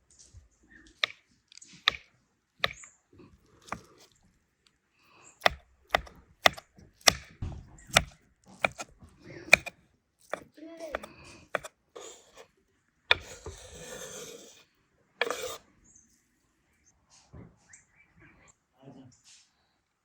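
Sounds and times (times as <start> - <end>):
knife chopping on cutting board: 3.6 - 4.1, 5.4 - 12.4, 13.1 - 14.6, 15.2 - 15.6.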